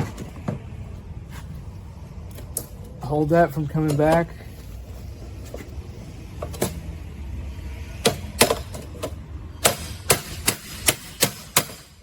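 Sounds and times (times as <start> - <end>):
hammer strikes: 9.6 - 12.0.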